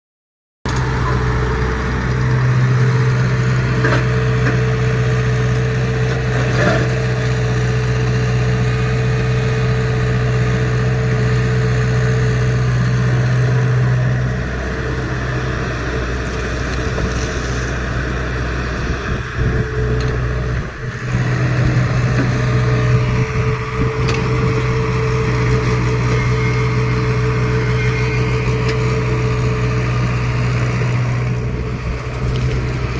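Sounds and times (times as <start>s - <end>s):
excavator diesel engine running: 0.7s - 32.9s.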